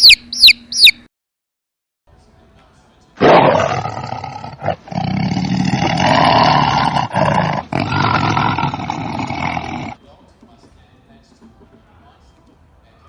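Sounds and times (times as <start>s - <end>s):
large animal calling loudly: 3.2s - 10.0s.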